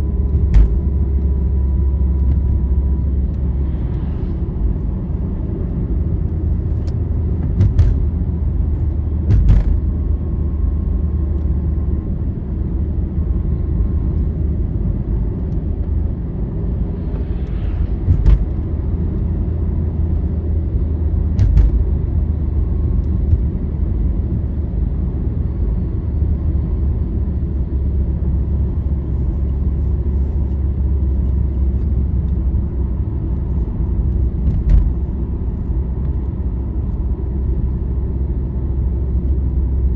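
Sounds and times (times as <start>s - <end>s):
vehicle engine and tyre drone: 0.0s - 39.9s
knocks and rattles over bumps: 0.3s - 1.3s, 7.0s - 10.1s, 21.4s - 22.2s.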